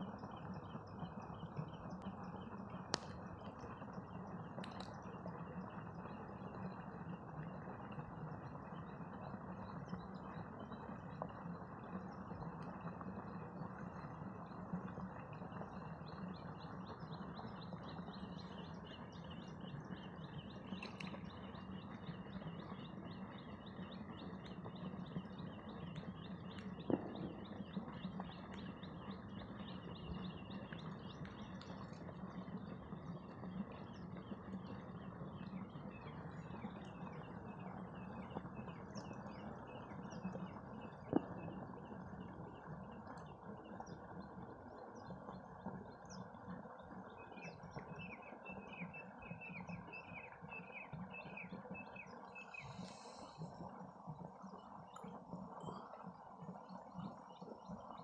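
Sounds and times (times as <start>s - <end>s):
small birds chirping: 12.8s - 58.0s.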